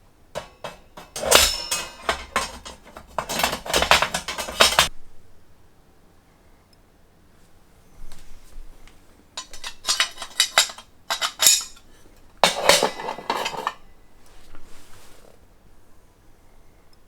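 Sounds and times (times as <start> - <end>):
metal parts clattering: 0.4 - 4.9, 9.4 - 13.8
metal parts clinking: 0.4 - 4.9, 9.4 - 13.8.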